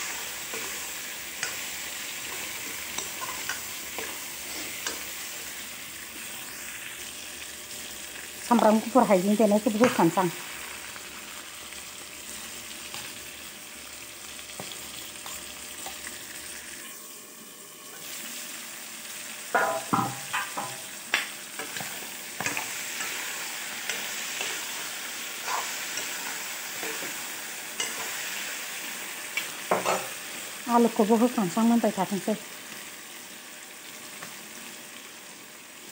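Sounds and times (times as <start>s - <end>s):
meat sizzling in oil: 0.0s - 35.9s.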